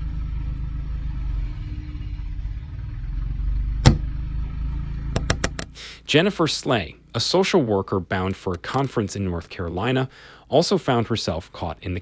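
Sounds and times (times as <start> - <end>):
sharp knock: 3.8 - 4.1, 5.2 - 5.7, 8.4 - 8.9
quick clicks: 5.2 - 5.7, 8.4 - 9.0.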